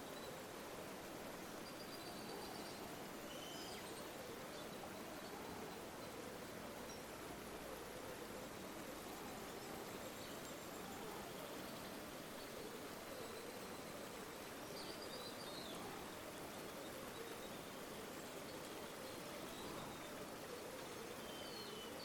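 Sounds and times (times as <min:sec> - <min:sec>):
river water rushing: 0:00.3 - 0:15.0
faint high bird chirp: 0:01.7 - 0:04.1.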